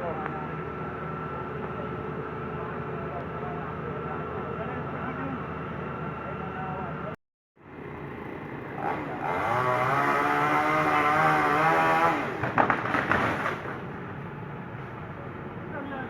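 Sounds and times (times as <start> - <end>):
excavator diesel engine revving: 8.4 - 12.6
sharp cracks and knocks: 12.4 - 13.9.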